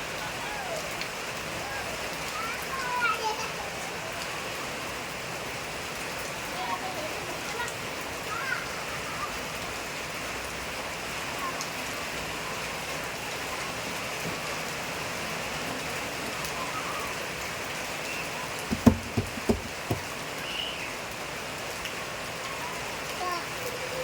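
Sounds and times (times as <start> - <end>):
steady rain falling: 0.0 - 24.0
low thumps: 18.7 - 20.1.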